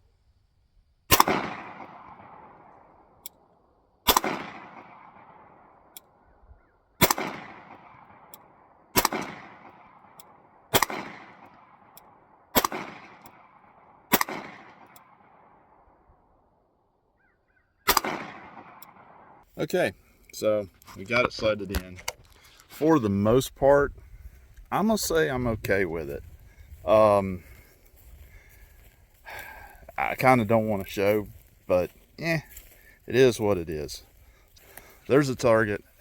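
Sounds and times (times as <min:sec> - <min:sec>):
pistol shots echoing: 0:01.1 - 0:02.9, 0:04.0 - 0:05.9, 0:07.0 - 0:15.9, 0:17.8 - 0:19.4.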